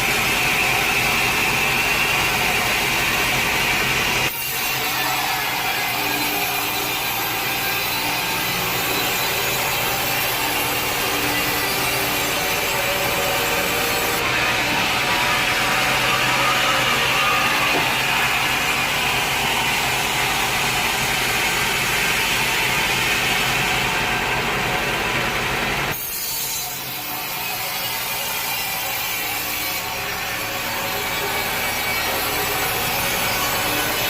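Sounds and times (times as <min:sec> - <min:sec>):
saw cutting through wood: 0:00.0 - 0:34.0.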